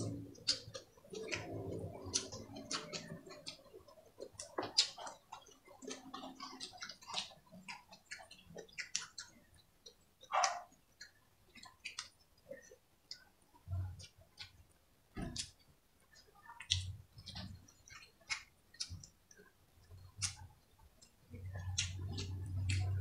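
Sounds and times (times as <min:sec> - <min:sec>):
wet mouth clicks and lip smacks: 0:00.0 - 0:13.2, 0:20.0 - 0:23.0.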